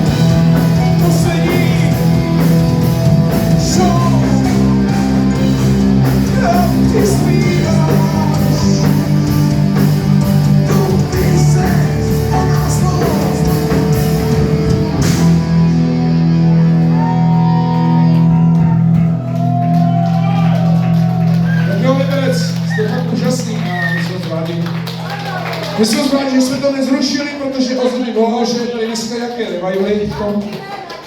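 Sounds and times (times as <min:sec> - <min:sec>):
steady drum beat: 0:00.0 - 0:16.4, 0:18.2 - 0:27.1
distorted electric guitars: 0:00.0 - 0:25.8
person singing: 0:00.6 - 0:02.6, 0:03.3 - 0:05.3, 0:06.0 - 0:13.9.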